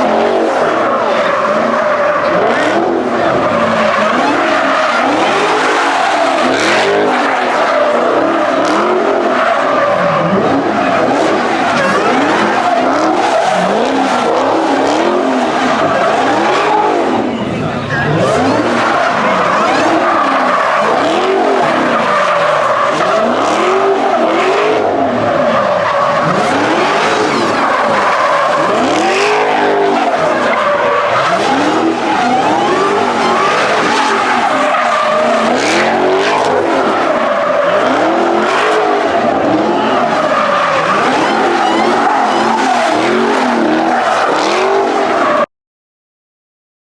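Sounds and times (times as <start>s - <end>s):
car engine revving: 0.0s - 45.5s
car tires squealing: 0.0s - 45.5s.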